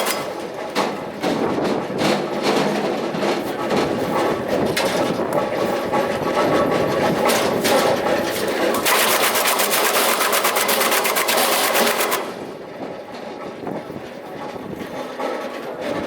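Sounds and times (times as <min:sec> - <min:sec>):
wood chipper chipping wood: 0:00.0 - 0:01.5, 0:02.2 - 0:12.6.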